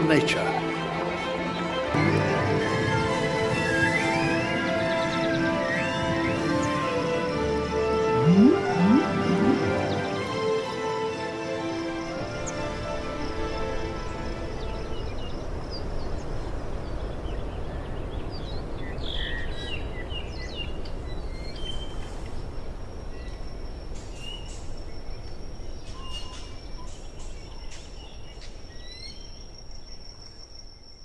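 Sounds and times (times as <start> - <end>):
bird chirps: 8.2 - 10.0.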